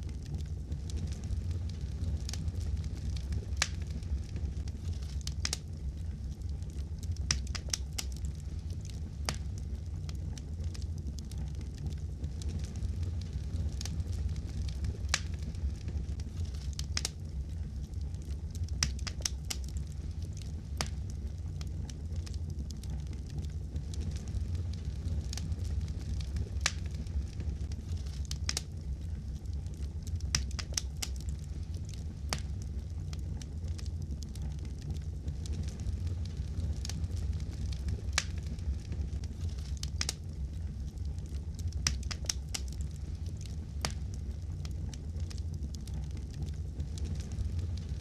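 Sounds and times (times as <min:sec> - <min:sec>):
fire crackling: 0:00.0 - 0:48.0
pops and snaps of fire: 0:00.0 - 0:48.0.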